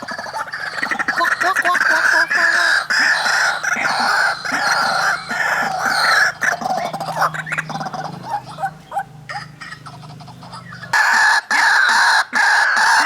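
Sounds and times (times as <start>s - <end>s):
waterhens calling harshly: 0.0s - 13.0s.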